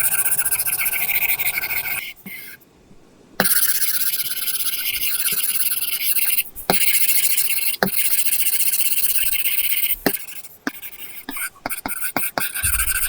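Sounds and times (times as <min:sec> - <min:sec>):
stylus scratching on screen film: 0:00.0 - 0:02.6, 0:03.4 - 0:13.0
stylus tapping: 0:10.1 - 0:13.0.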